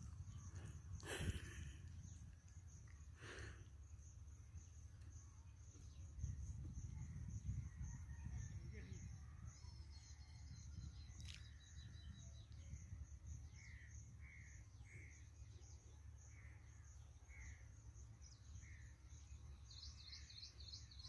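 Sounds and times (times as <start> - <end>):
high insect hum: 0.0 - 21.0.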